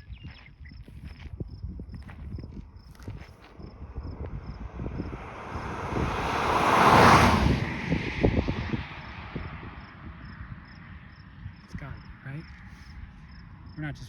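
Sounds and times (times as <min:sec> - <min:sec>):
faint cricket chirps: 0:00.0 - 0:07.2, 0:08.8 - 0:14.0
wind buffeting microphone: 0:00.0 - 0:14.0
vehicle passing by: 0:02.9 - 0:11.6.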